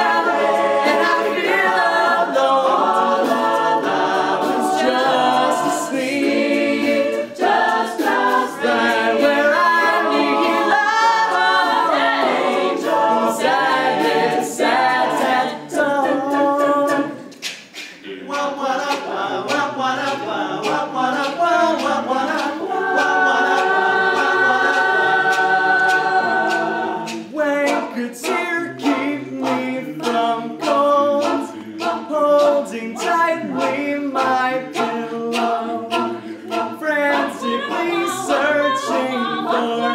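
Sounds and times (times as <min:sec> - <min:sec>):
a cappella group singing: 0:00.0 - 0:39.9
sharp percussive clicks: 0:16.3 - 0:39.6.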